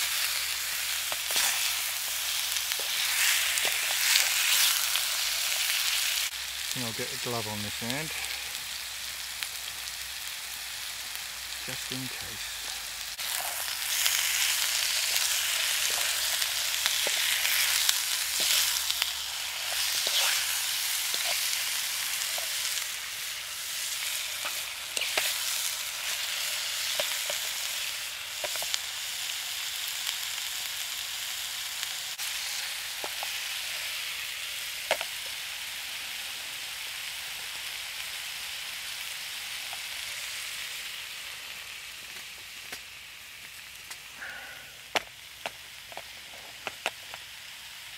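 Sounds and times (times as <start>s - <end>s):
chicken sizzling in a pan: 0.0s - 47.9s
fork scraping a pan: 19.6s - 21.6s.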